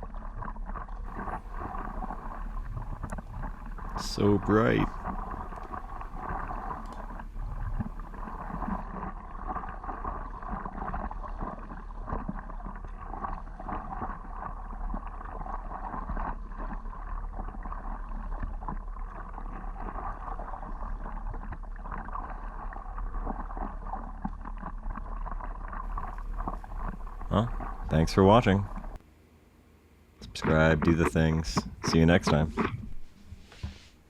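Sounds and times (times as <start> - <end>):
water splashing and lapping: 0.0 - 29.0, 30.2 - 34.0.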